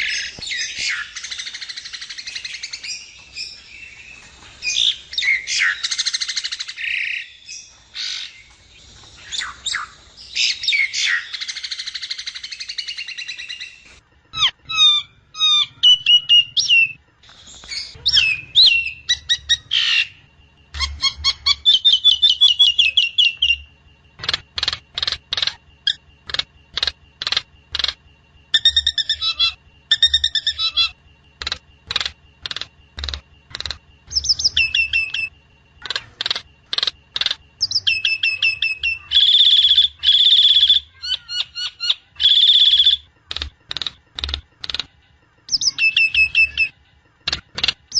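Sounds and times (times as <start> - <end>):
bird whistled notes and trill: 0.0 - 23.7, 27.8 - 31.0, 34.0 - 35.3, 36.4 - 43.1, 45.5 - 46.8.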